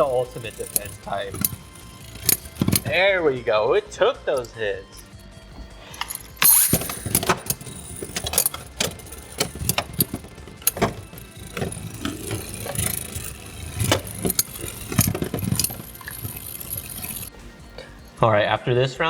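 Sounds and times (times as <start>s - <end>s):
spinning tops clacking: 0.0s - 3.5s, 4.4s - 18.1s
spinning whir: 0.0s - 3.6s, 4.4s - 18.2s.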